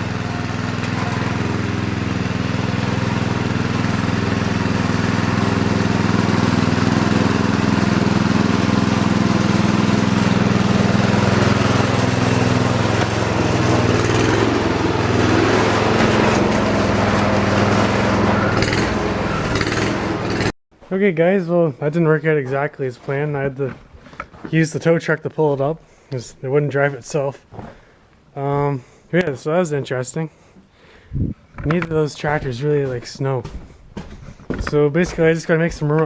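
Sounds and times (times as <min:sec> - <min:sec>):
small engine running: 0:00.0 - 0:20.6.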